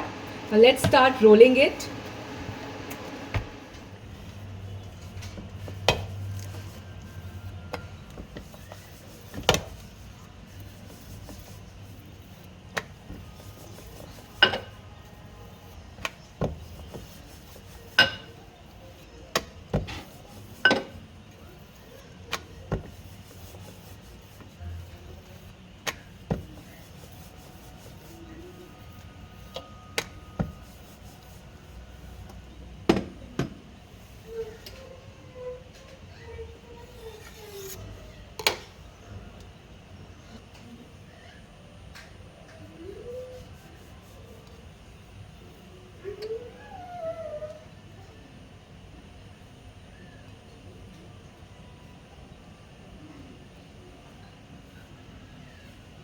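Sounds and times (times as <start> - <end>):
rolling pin rubbing on board: 5.6 - 14.8, 15.4 - 19.0, 21.6 - 25.5, 26.1 - 32.3.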